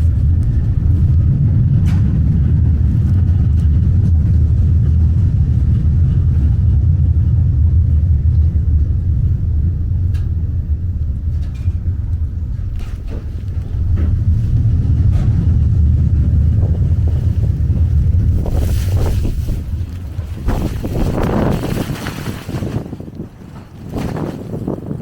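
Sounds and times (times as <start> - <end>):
subway train rumbling: 0.0 - 25.0.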